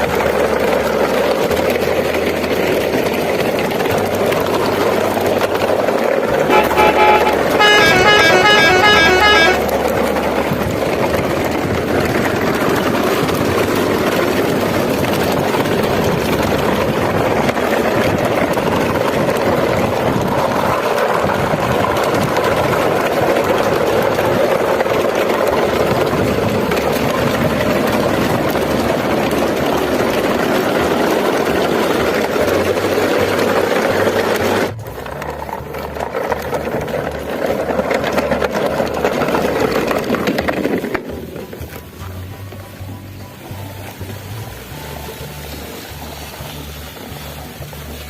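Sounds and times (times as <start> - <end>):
engine rumble: 0.0 - 48.0
vehicle horn beeping tune: 6.4 - 10.2.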